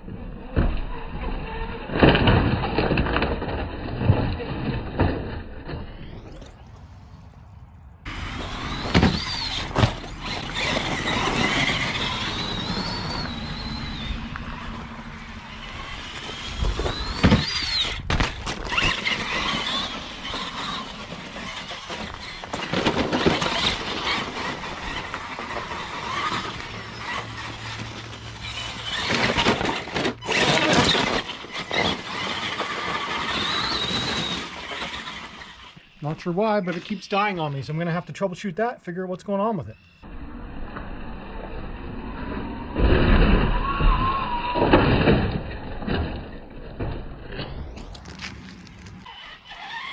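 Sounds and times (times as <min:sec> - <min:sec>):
electric motor whining: 0:04.1 - 0:36.0
tyres crunching on gravel: 0:06.5 - 0:38.0, 0:47.5 - 0:49.9.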